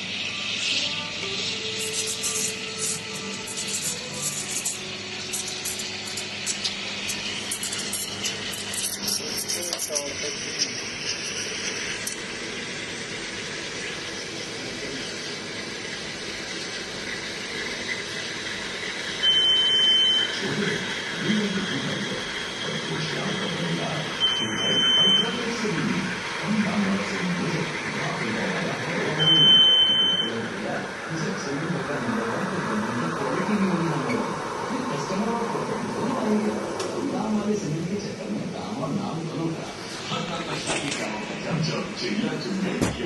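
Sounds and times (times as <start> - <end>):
high electronic beep: 24.2 - 25.4, 29.2 - 30.3
low voices: 30.3 - 43.0.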